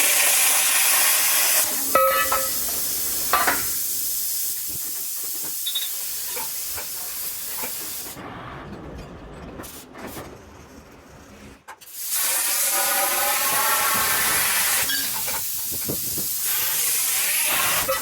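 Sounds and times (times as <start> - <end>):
plasma cutter hissing: 0.0 - 8.2, 11.9 - 18.0.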